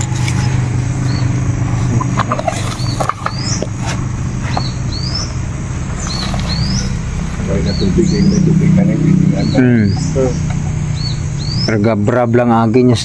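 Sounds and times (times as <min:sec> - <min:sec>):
steady low hum: 0:00.0 - 0:13.0
bird calling with rising whistle: 0:04.4 - 0:08.5.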